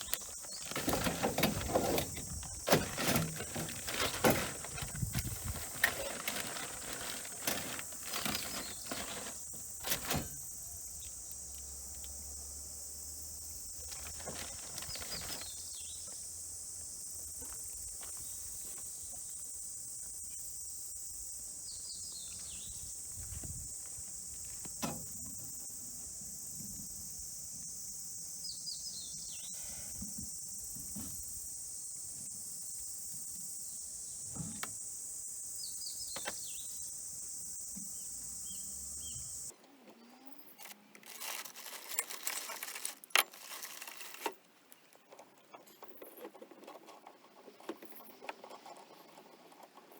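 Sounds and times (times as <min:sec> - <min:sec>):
knocks and rustles: 0:00.0 - 0:10.5.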